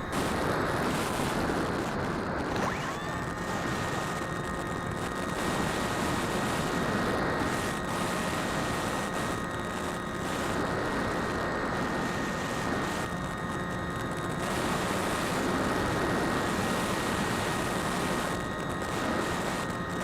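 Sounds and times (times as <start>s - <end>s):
drone propellers whining: 0.0s - 6.3s.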